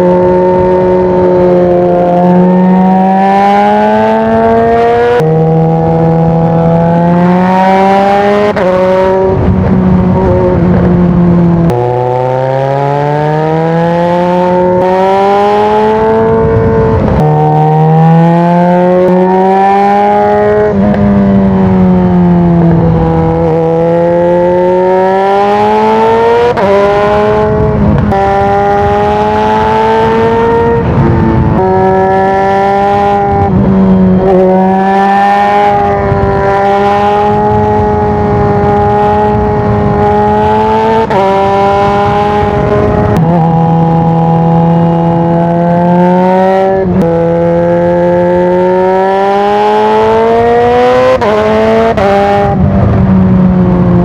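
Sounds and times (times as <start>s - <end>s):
motorcycle engine shifting gears: 0.0s - 54.0s.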